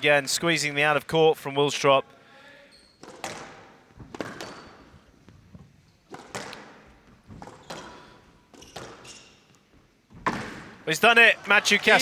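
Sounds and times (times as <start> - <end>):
squash ball smacking off walls: 3.0 - 4.8, 6.1 - 9.1, 10.1 - 10.8
squash ball struck by rackets: 3.0 - 4.8, 6.1 - 9.1.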